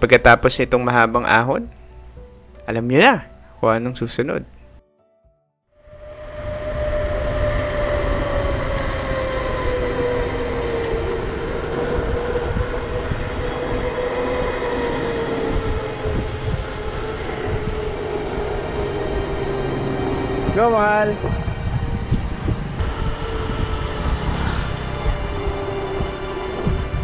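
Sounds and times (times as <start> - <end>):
bicycle tyre hum: 5.8 - 27.0
wind buffeting microphone: 5.8 - 27.0.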